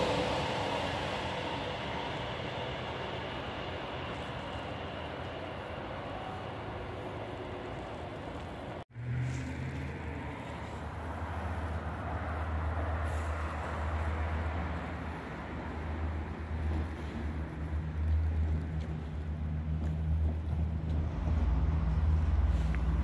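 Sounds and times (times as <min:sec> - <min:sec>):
diesel train engine drone: 0:00.0 - 0:23.0
high-speed train rushing past: 0:00.0 - 0:23.0.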